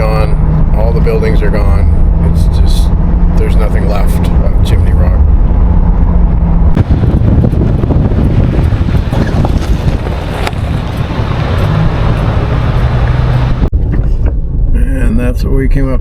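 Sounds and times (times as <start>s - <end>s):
car engine and road rumble: 0.0s - 16.0s
wind noise on microphone: 4.2s - 15.0s.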